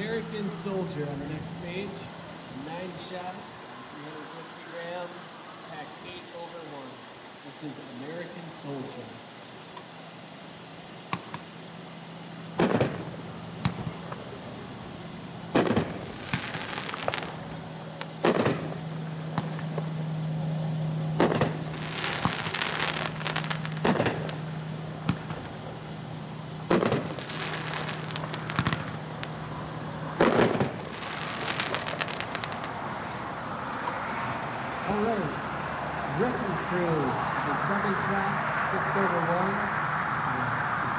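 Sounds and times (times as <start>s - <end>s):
firework crackling: 0.0s - 40.9s
steady low hum: 0.0s - 40.9s
firework shell bursts booming: 10.9s - 32.8s.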